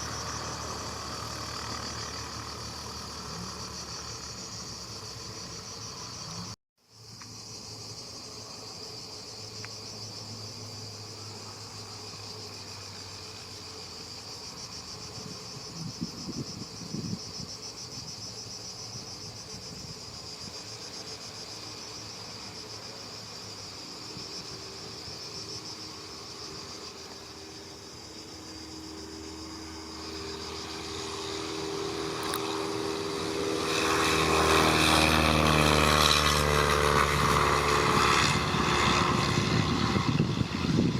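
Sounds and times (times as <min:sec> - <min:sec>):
propeller aircraft engine: 0:00.0 - 0:06.6, 0:18.4 - 0:40.9
insects chirring: 0:00.0 - 0:40.9.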